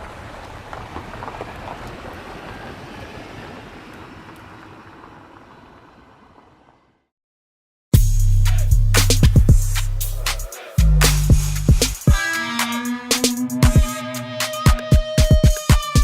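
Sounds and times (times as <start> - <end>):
rushing noise: 8.5 - 16.0.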